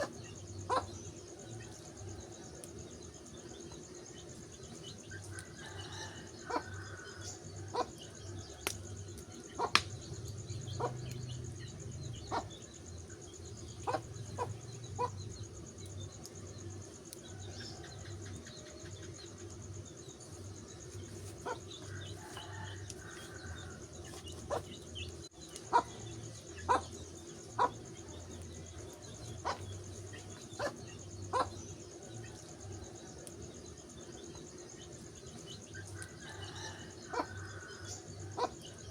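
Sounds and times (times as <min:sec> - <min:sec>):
birds chirping: 0:00.0 - 0:38.9
insects chorus: 0:00.0 - 0:38.9
wood fire crackling and popping: 0:08.6 - 0:10.4.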